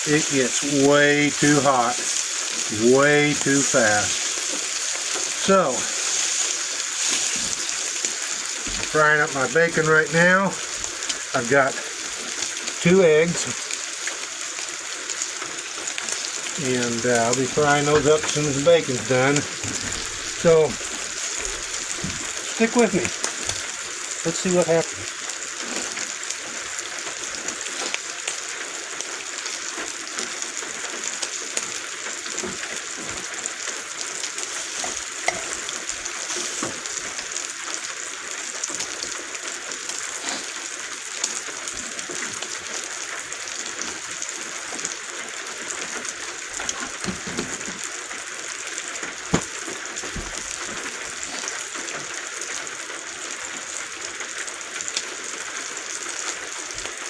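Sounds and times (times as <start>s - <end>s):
bacon sizzling and popping: 0.0s - 57.0s
rain on roof: 0.0s - 57.0s.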